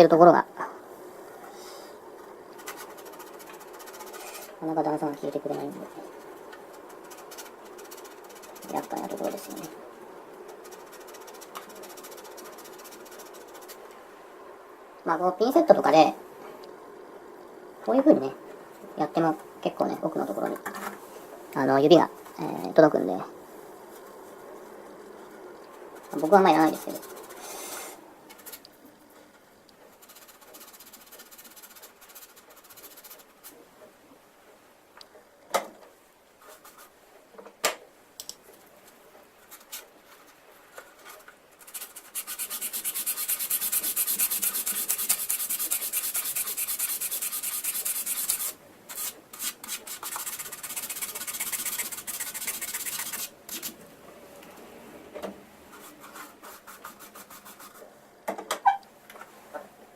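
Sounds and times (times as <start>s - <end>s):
sandpaper rubbing on plastic: 2.6s - 4.6s, 6.7s - 9.7s, 10.5s - 13.8s, 26.0s - 27.4s, 29.9s - 33.6s, 41.0s - 53.8s, 55.8s - 57.9s.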